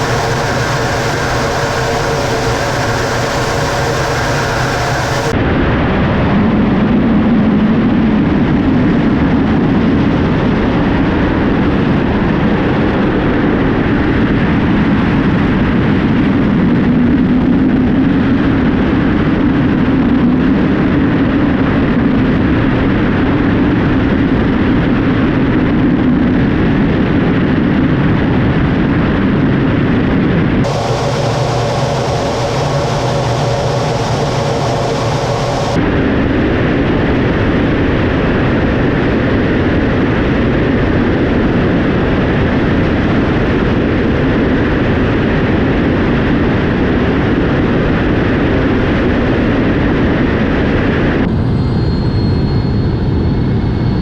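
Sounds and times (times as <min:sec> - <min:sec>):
jet engine roar: 0:00.0 - 0:07.8, 0:30.6 - 0:36.0
jet engine whine: 0:00.0 - 0:20.9, 0:30.3 - 0:36.5, 0:49.8 - 0:54.0.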